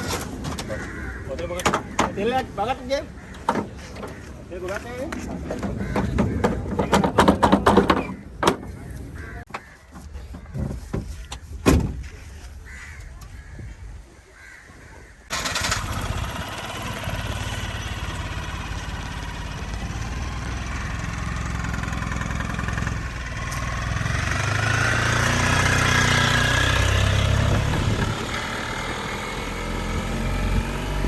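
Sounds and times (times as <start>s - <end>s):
engine running: 15.3s - 31.0s.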